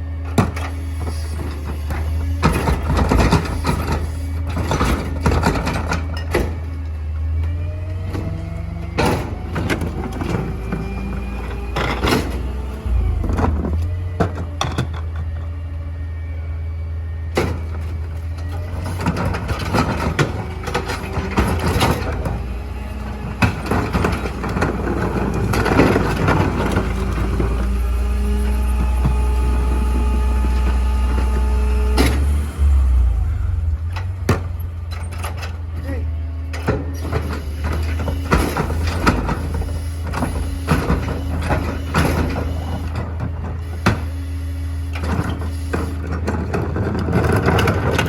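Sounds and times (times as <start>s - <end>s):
garbage truck engine running: 0.0s - 48.0s
hydraulics whining: 0.0s - 48.0s
metal clanks and knocks: 8.1s - 15.5s, 17.4s - 27.7s, 33.9s - 35.9s, 45.0s - 48.0s.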